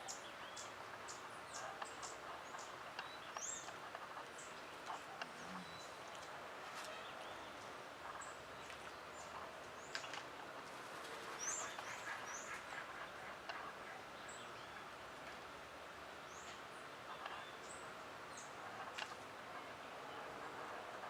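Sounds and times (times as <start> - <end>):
outdoor background hiss: 0.0 - 21.0
birds chirping: 0.1 - 6.2.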